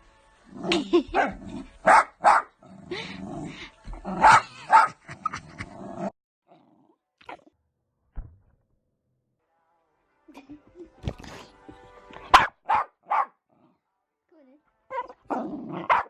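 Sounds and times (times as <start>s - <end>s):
dog barking sharply: 1.8s - 2.5s, 4.2s - 5.0s, 12.3s - 13.4s.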